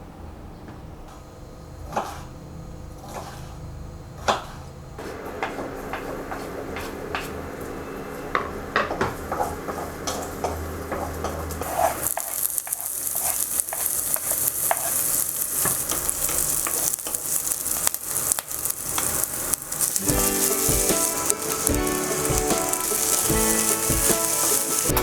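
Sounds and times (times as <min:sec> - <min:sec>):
stirring knocks: 0:04.3 - 0:25.0
food sizzling in a pan: 0:05.0 - 0:25.0.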